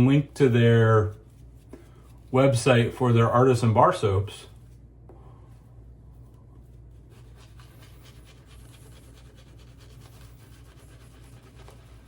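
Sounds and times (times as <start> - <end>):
steady low hum: 0.0 - 12.0
shaving brush swishing in soap: 6.6 - 12.0.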